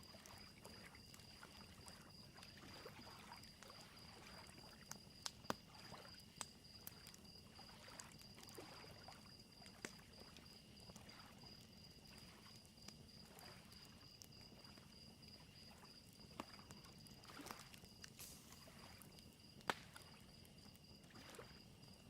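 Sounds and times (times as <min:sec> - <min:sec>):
crickets chirping: 0:00.0 - 0:22.0
small waves lapping: 0:00.1 - 0:04.8, 0:05.7 - 0:06.2, 0:06.8 - 0:12.6, 0:13.2 - 0:14.8, 0:15.4 - 0:20.3, 0:21.0 - 0:22.0
wood fire crackling: 0:16.1 - 0:21.1.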